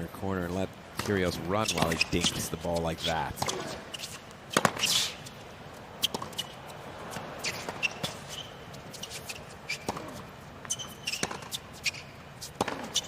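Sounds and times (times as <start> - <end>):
tennis ball bounces: 0.9 - 13.0
tennis racket strikes: 1.0 - 5.1, 10.8 - 11.6, 12.4 - 13.0.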